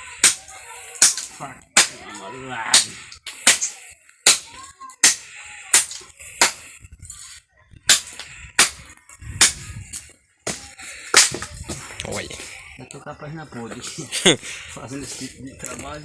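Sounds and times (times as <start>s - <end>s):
hand tool striking wood: 10.4s - 11.8s.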